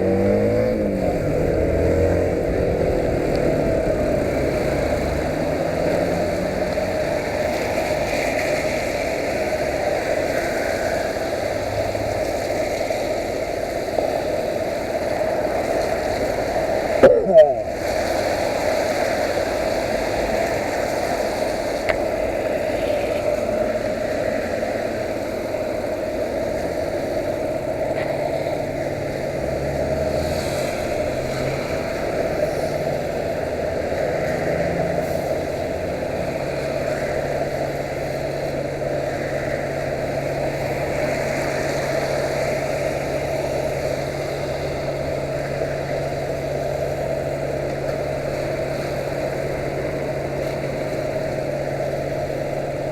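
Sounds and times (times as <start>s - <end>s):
low steady tone: 16.9s - 18.1s.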